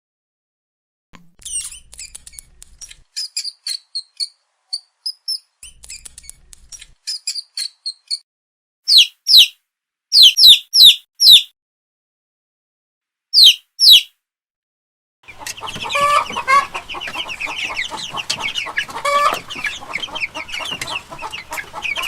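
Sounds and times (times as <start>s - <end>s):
small birds chirping: 1.4s - 8.2s, 8.9s - 11.5s, 13.4s - 14.1s, 15.3s - 22.0s.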